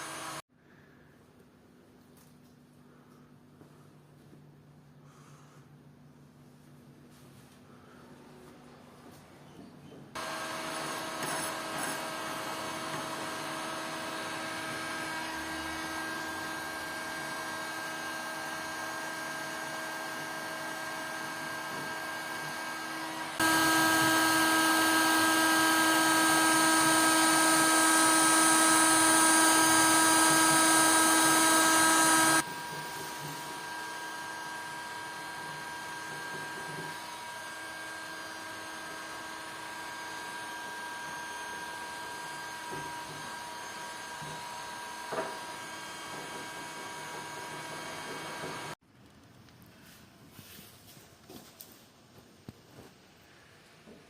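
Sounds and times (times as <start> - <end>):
power tool motor humming: 0.0 - 0.4, 10.2 - 48.8.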